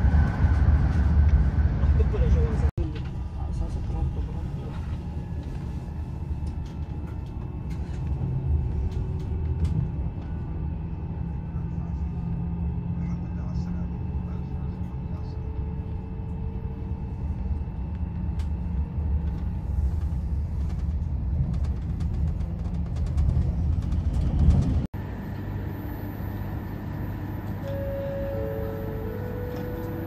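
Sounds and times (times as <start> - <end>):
train wheels rumbling on rail: 0.0 - 13.8, 16.8 - 24.9
station platform hum: 0.0 - 30.0
short tones stepping in pitch: 25.7 - 30.0.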